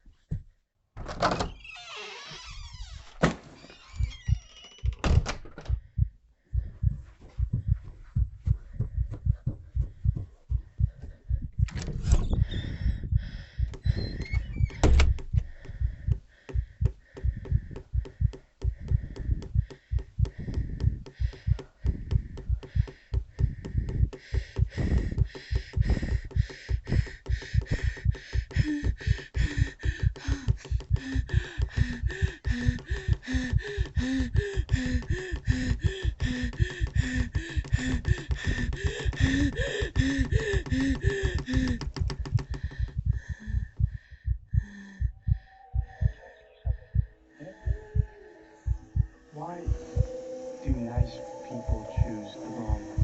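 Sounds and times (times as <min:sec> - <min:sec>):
rhythmic knocks: 0:04.0 - 0:53.0
high steady tone: 0:45.5 - 0:53.0.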